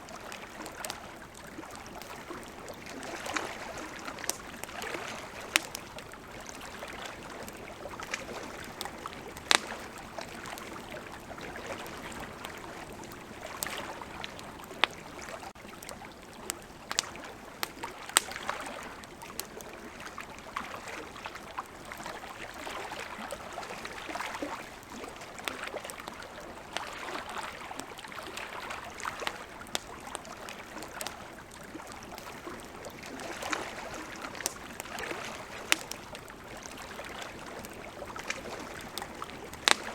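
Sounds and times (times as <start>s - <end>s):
river water flowing: 0.0s - 39.9s
campfire crackling and popping: 0.1s - 39.9s.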